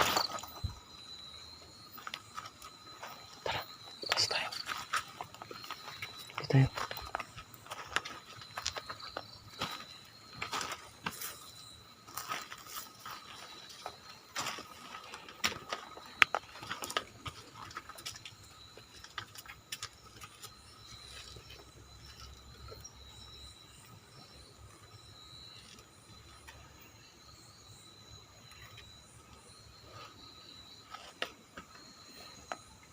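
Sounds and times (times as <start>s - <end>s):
footsteps crunching on debris: 0.0s - 3.3s, 4.4s - 22.4s.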